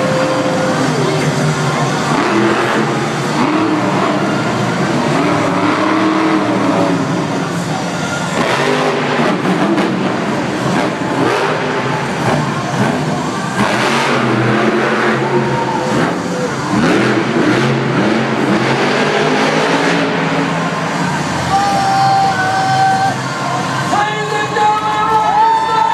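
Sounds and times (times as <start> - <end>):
monster truck engines revving: 0.0 - 25.9.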